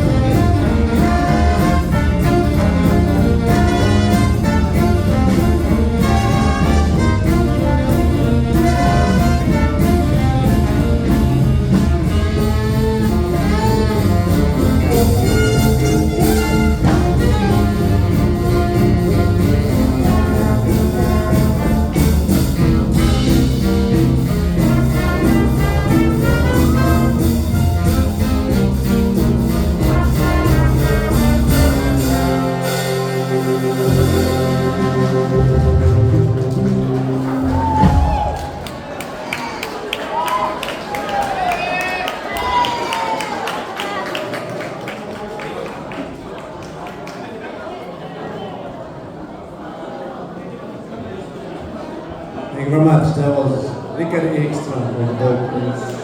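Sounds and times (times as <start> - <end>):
jazz band playing: 0.0 - 39.9.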